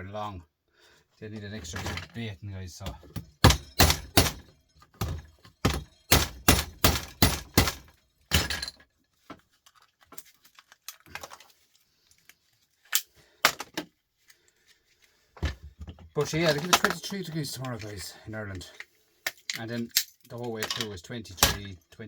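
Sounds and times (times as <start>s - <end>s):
hammer striking plastic socket: 3.2s - 4.4s.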